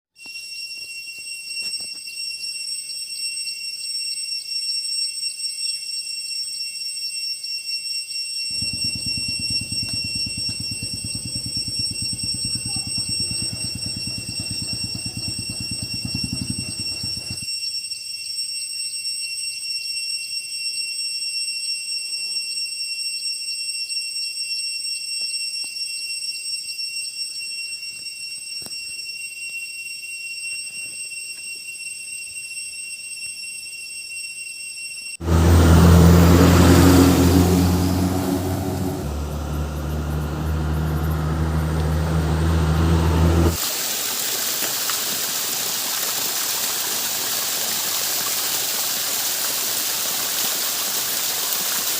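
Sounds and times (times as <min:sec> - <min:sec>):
high-pitched insect drone: 0:00.2 - 0:35.2, 0:35.8 - 0:43.6
steady high-pitched tones: 0:08.5 - 0:17.4
small engine pulsing: 0:08.5 - 0:17.5, 0:35.2 - 0:43.7.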